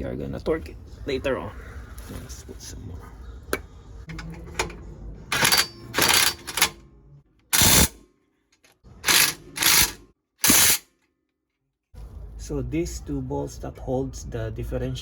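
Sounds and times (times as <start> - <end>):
ratchet wrench clicking: 5.3 - 6.7, 7.6 - 8.0, 9.1 - 10.8.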